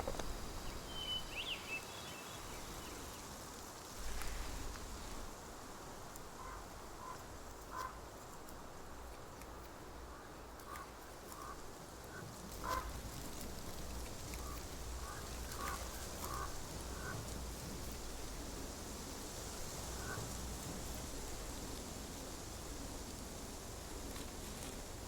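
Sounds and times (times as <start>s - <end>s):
faint steady hiss: 0.0s - 25.0s
frogs croaking: 10.2s - 13.0s, 14.4s - 17.4s.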